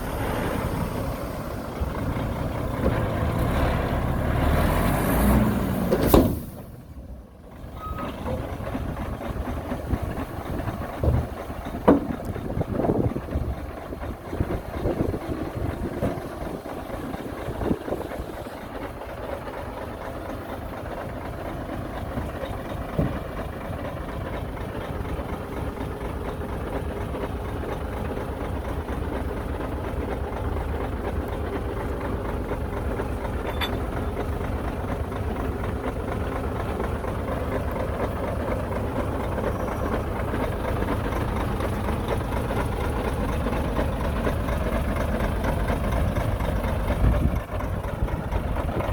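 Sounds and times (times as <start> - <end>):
diesel engine running: 0.0 - 48.9
short knocks: 11.0 - 12.4.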